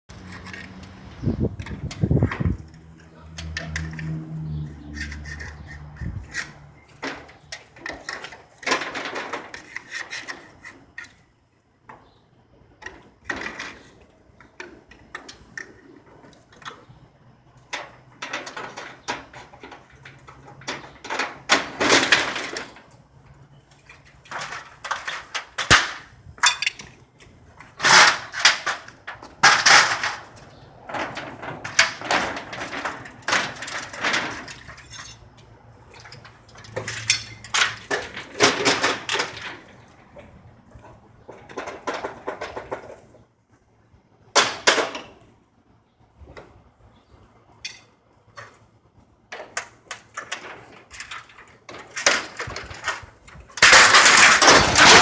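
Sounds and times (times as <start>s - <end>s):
tools knocking and clanking: 35.9s - 39.7s.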